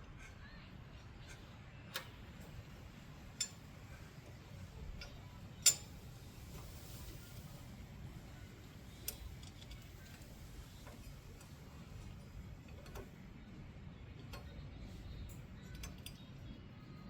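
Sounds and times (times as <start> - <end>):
hand tools clicking and tapping: 5.0 - 6.0.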